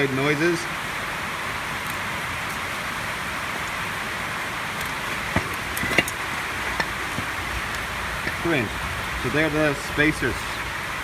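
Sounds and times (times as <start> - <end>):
heavy rain on roof: 0.0 - 11.0.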